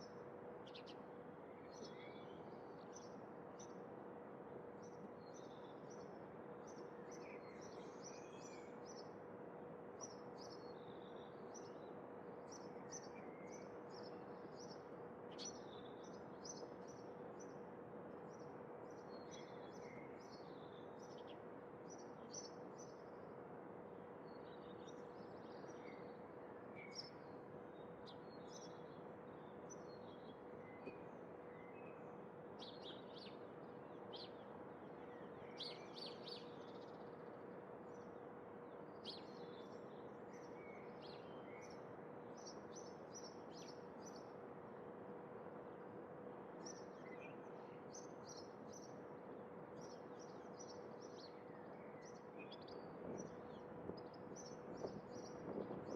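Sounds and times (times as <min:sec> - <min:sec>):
faint constant hum: 0:00.0 - 0:55.9
small birds chirping: 0:32.6 - 0:38.1, 0:38.8 - 0:44.4, 0:46.6 - 0:49.0, 0:49.7 - 0:55.9.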